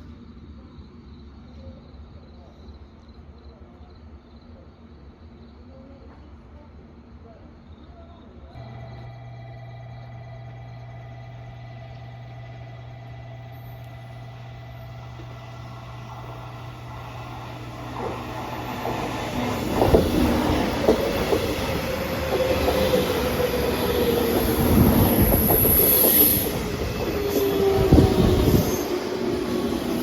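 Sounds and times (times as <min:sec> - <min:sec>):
train running on rails: 0:08.6 - 0:30.0
wheels clicking over rail joints: 0:15.0 - 0:30.0.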